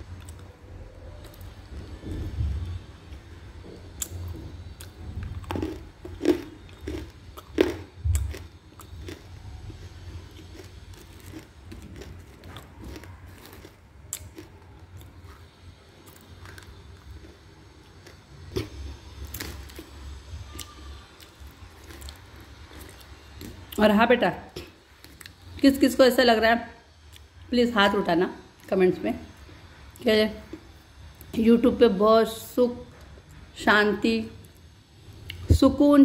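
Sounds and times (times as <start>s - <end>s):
crunchy food being chewed: 0.1s - 0.5s, 1.2s - 23.8s, 24.6s - 25.6s.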